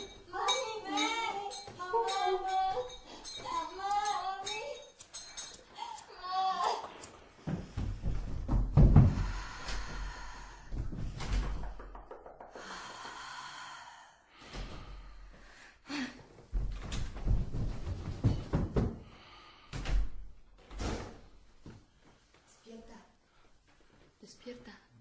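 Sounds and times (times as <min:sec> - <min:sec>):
heavy thuds and knocks: 0:07.5 - 0:12.6, 0:16.5 - 0:19.2.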